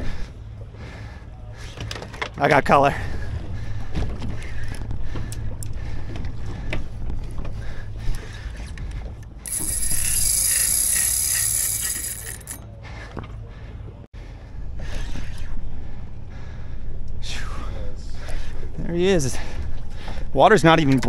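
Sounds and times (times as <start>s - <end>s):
low rumble: 2.9s - 9.4s, 12.7s - 20.4s
fishing reel gears clicking: 9.4s - 12.6s.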